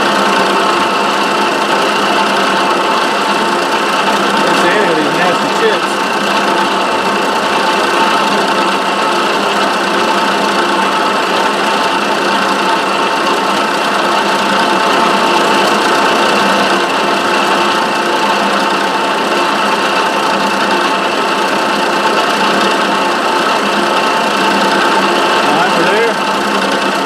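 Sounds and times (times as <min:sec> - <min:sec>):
milling machine cutting plastic: 0:00.0 - 0:12.3.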